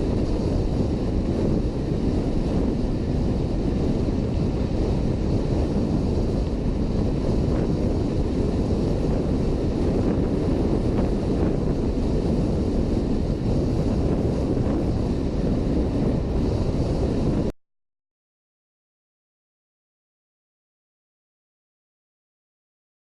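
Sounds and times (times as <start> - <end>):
wind buffeting microphone: 0.0 - 17.5.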